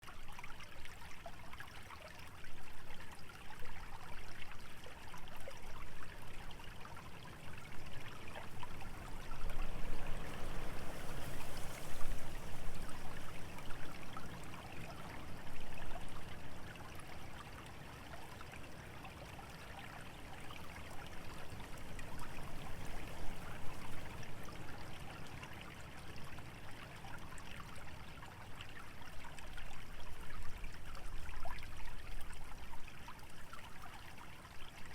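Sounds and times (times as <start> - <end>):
small stream trickling: 0.0 - 34.9
wind rustling dry vegetation: 6.2 - 33.6.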